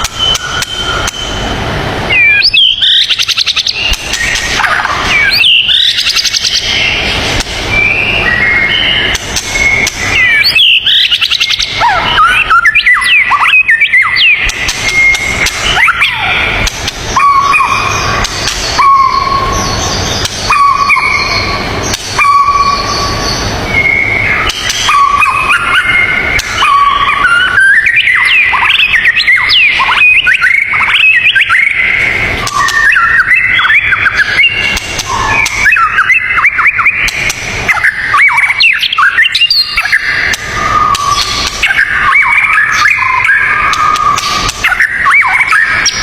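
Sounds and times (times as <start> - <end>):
steady hiss: 0.0 - 12.6
birds chattering chirps: 0.0 - 46.0.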